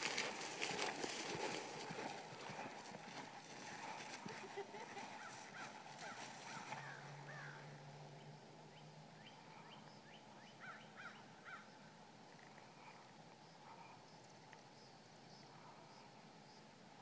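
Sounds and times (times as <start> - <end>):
faint birds chirping: 2.0 - 17.0.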